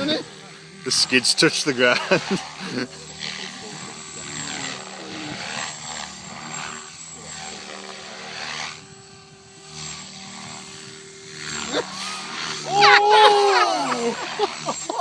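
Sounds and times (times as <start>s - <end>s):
rc helicopter motor and rotor drone: 0.0s - 15.0s
rotor blades whooshing: 0.0s - 15.0s.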